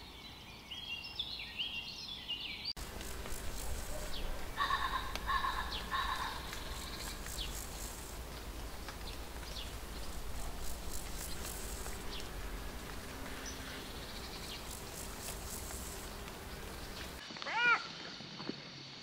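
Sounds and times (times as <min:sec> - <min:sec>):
bird chirps: 0:00.0 - 0:08.2
insects buzzing: 0:02.8 - 0:17.2
steady low rumble: 0:02.8 - 0:17.2
repeated bird call: 0:03.7 - 0:08.0.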